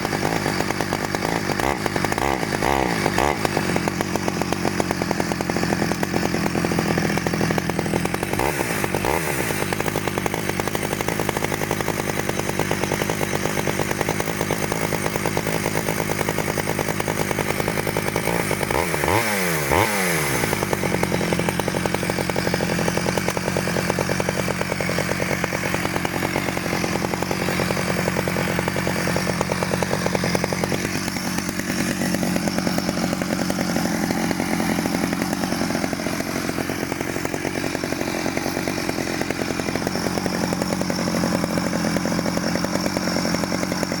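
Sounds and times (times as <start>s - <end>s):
chainsaw engine running: 0.0s - 44.0s.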